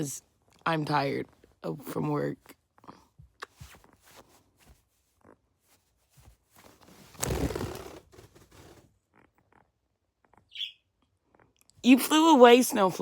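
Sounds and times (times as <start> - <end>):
bird wings flapping: 6.6 - 8.9
bird high call: 10.5 - 10.8.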